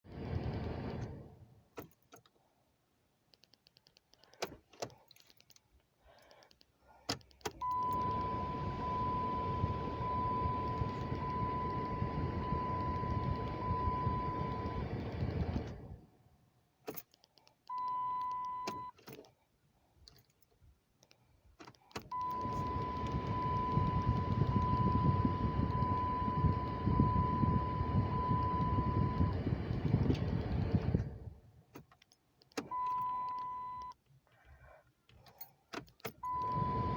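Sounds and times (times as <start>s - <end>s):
keys clicking and jangling: 3.8s - 6.5s, 35.1s - 36.2s
high warning chime: 7.6s - 14.8s
steady electrical whir: 7.6s - 16.2s, 22.2s - 31.5s.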